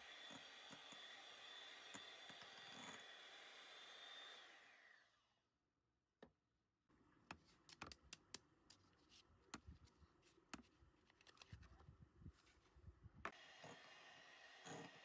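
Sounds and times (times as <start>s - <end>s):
faint clicks and taps: 7.2s - 11.8s.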